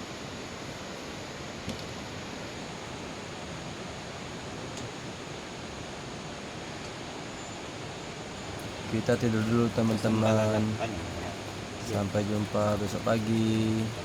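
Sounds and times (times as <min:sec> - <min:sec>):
faint click: 0:01.6 - 0:01.9
heavy rain hissing: 0:02.0 - 0:14.0.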